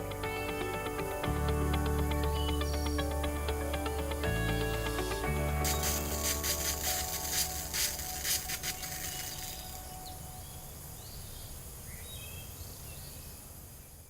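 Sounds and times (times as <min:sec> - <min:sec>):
music: 0:00.0 - 0:10.0
outdoor background noise: 0:00.0 - 0:14.0
high bird chirps: 0:05.6 - 0:11.4.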